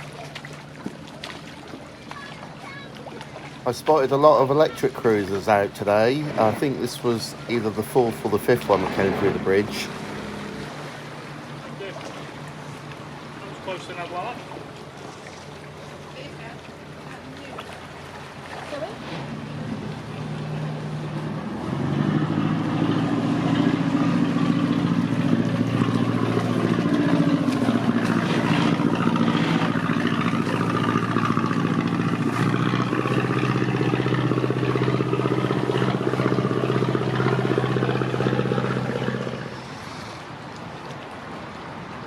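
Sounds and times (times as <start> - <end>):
boat engine running: 0.0 - 41.7.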